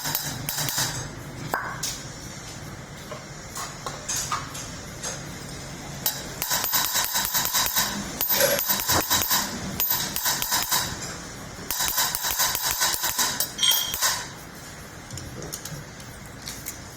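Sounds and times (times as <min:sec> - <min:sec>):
rapid metallic hand tool clicking: 0:06.0 - 0:10.9, 0:11.7 - 0:14.2.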